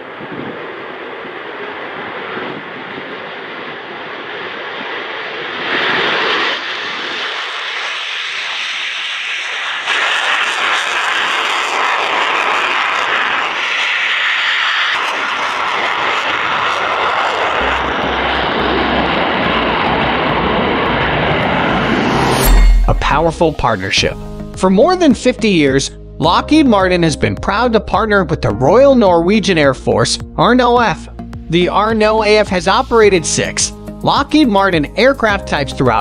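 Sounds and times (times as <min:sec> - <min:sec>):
jet engine roar: 0:00.0 - 0:24.6, 0:30.8 - 0:36.0
deep rumble: 0:16.7 - 0:25.2, 0:25.9 - 0:35.5.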